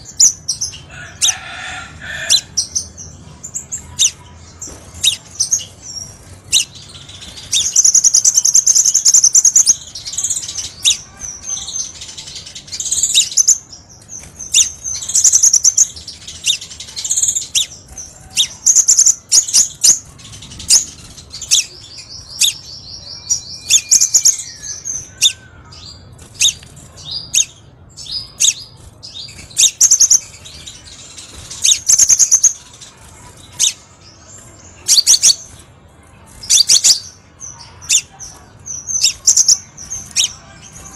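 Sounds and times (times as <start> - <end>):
bird chirps and buzzy trills: 0.0 - 40.9.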